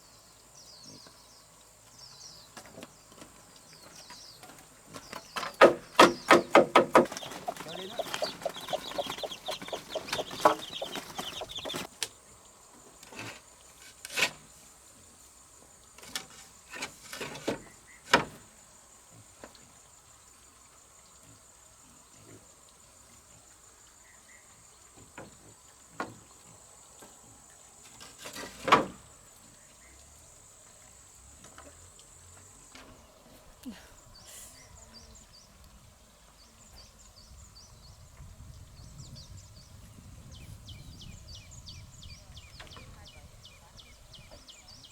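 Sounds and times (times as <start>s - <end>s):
sharp knocks: 5.4s - 11.9s
chickens clucking: 5.6s - 11.9s.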